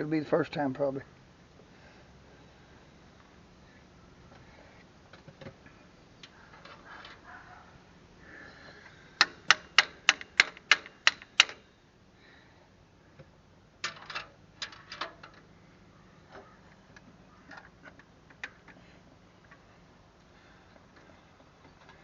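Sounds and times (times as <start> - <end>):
hand tool clicks: 9.2 - 11.6.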